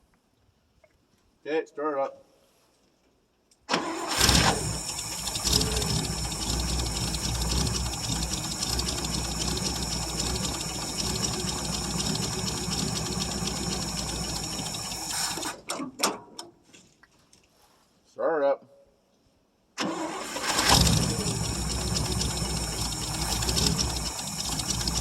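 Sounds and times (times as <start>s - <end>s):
engine cranking on starter: 3.7s - 16.3s, 19.8s - 25.0s.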